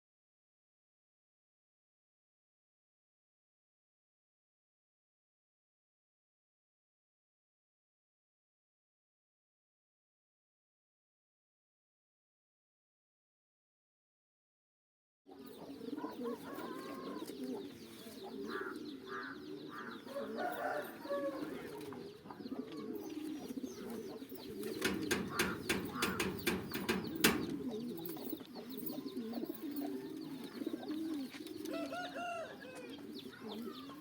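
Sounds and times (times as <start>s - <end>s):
pigeons cooing: 15.3s - 34.0s.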